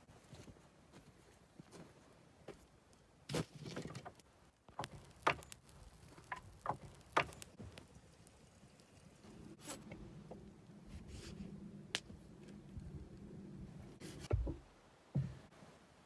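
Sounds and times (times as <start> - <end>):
wooden branches knocking and cracking: 3.3 - 7.8.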